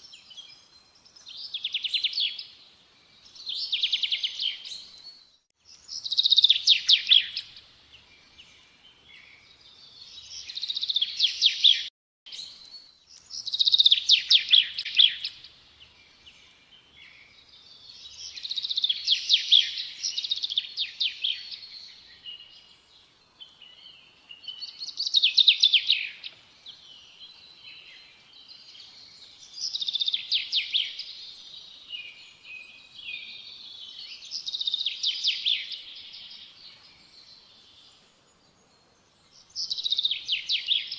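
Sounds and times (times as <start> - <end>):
songbird trilling: 6.0 - 7.5, 13.2 - 15.4.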